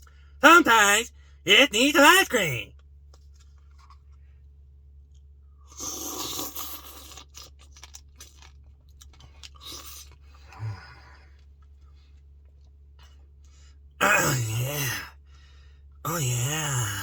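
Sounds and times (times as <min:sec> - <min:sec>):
person crunching food: 0:03.1 - 0:04.2, 0:05.6 - 0:10.6.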